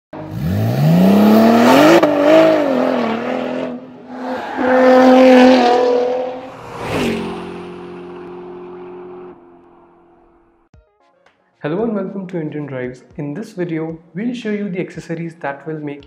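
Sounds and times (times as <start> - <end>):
car engine revving: 0.2 - 10.6.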